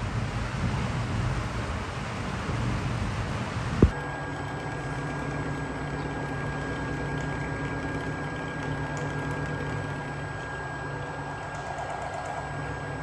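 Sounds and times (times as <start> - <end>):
faint high whine: 0.0 - 4.0
motor humming steadily: 0.0 - 4.0.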